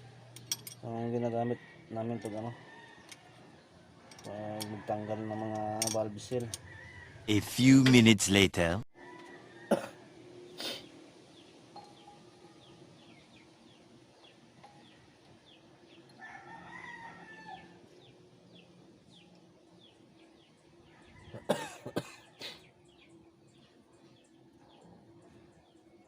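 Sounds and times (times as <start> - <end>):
rooster crowing: 1.5 - 3.4, 4.7 - 5.8, 6.5 - 7.3, 16.2 - 17.8.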